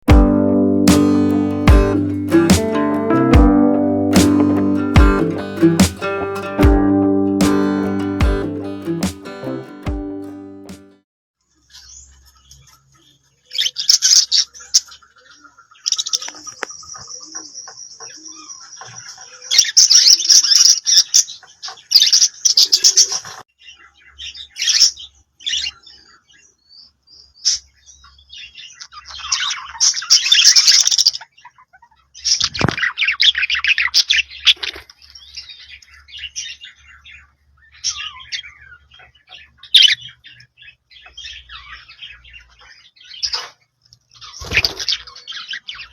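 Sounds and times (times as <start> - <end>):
budgerigars chirping and warbling: 11.6 - 45.9.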